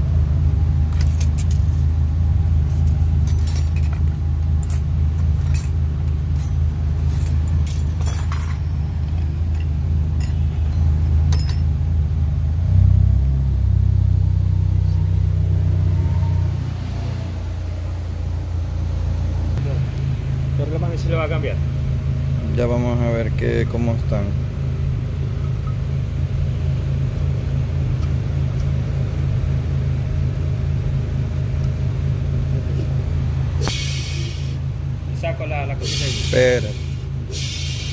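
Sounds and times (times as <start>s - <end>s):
car engine running: 0.0s - 37.9s
motor rumbling: 0.0s - 37.9s
light metallic clinks: 3.2s - 11.8s.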